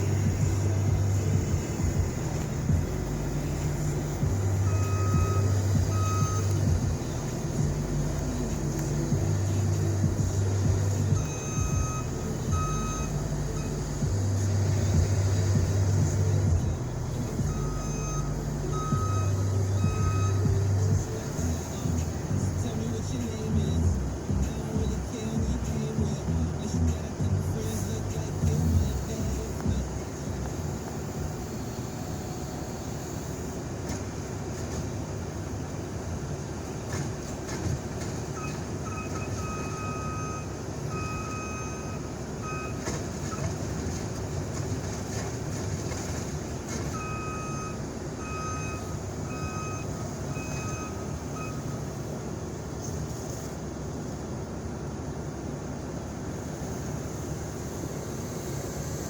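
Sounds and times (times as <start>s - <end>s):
reversing alarm beeping: 0.0s - 33.8s, 38.2s - 43.9s, 46.6s - 52.1s
heavy truck engine running: 0.0s - 59.0s.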